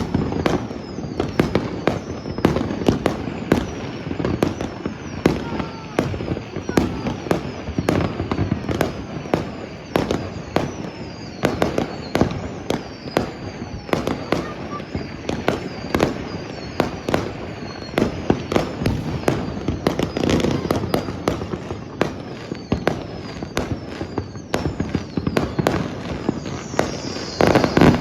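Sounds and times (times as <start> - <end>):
fireworks bangs: 0.0 - 28.0
fireworks crackling: 0.0 - 28.0
whistles falling in pitch: 0.0 - 28.0.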